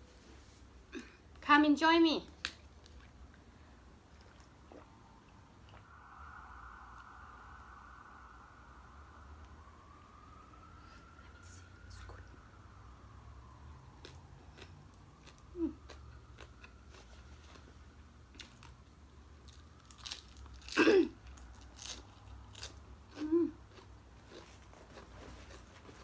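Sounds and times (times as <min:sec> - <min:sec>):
chewing and crunching: 0:02.4 - 0:05.9, 0:13.9 - 0:26.0.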